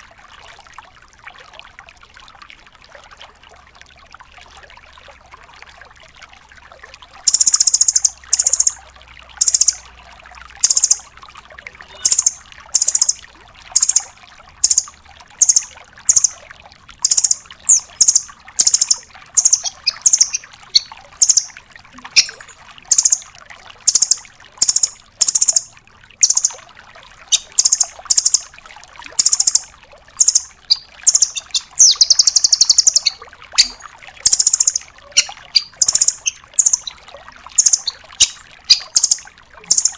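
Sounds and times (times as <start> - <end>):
bird high trilled calls: 7.3 - 8.8, 9.4 - 9.8, 10.6 - 11.1, 11.8 - 16.4, 17.0 - 26.6, 27.3 - 28.5, 29.2 - 37.0, 37.6 - 39.9.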